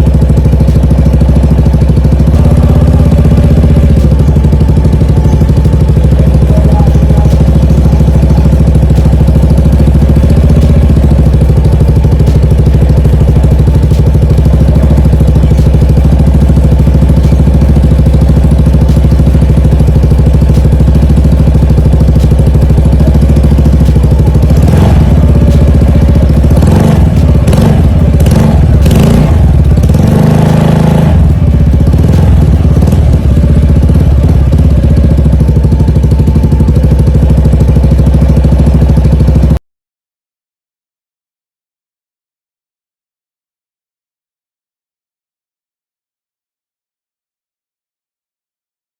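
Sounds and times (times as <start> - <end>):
scooter engine idling: 0.0 - 39.6
scooter throttle blips: 0.1 - 39.2.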